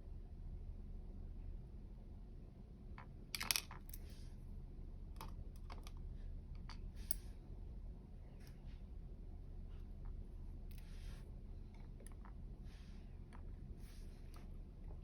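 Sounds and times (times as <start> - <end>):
small metal clicks of lock parts: 3.3 - 4.1, 5.2 - 7.3.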